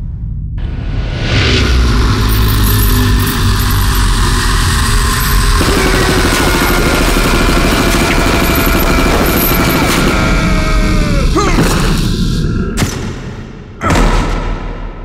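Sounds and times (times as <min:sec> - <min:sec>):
machine-gun fire: 0:05.1 - 0:10.4.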